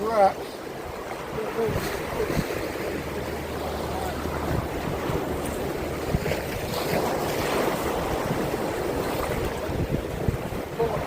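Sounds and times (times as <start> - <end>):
water lapping around boat: 0.0 - 11.0
wind on microphone: 0.7 - 11.0.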